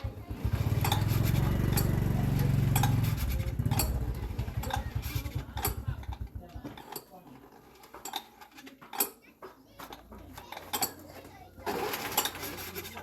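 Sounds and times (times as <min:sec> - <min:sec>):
tractor engine slowing to stop: 0:00.1 - 0:06.5.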